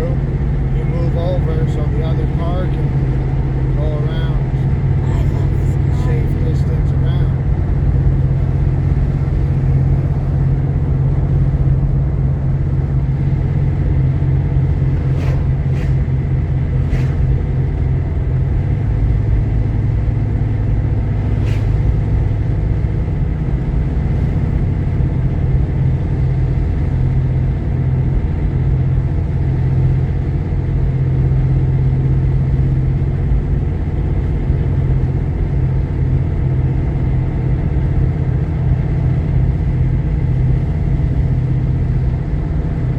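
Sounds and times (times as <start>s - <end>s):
engine and road rumble in car: 0.0s - 42.9s.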